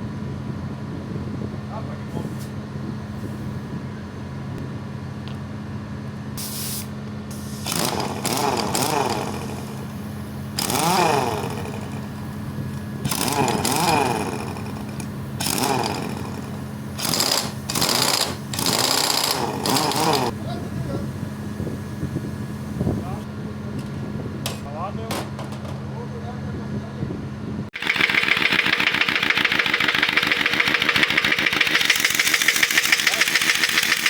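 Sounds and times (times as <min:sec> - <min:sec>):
pneumatic impact wrench bursts: 0:06.4 - 0:20.4, 0:27.8 - 0:34.0.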